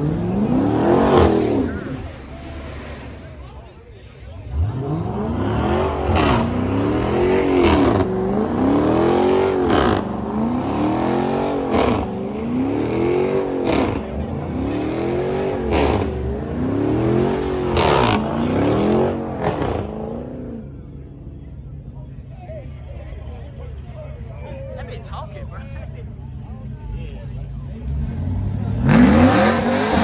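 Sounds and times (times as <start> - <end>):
engine crack on rev drop: 0.0 - 3.8, 4.4 - 20.8, 27.8 - 30.0
car engine revving: 0.0 - 30.0.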